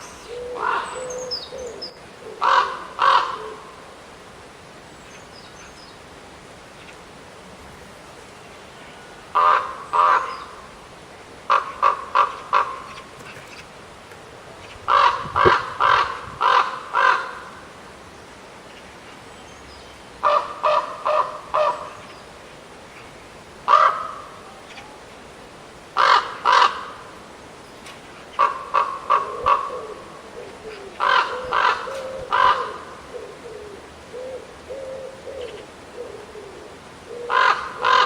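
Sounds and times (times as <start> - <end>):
crow cawing: 0.6 - 1.0, 2.4 - 3.6, 9.3 - 10.4, 14.9 - 17.6, 20.2 - 21.8, 23.7 - 24.3, 26.0 - 27.0, 28.4 - 30.0, 30.9 - 32.9, 37.1 - 38.0.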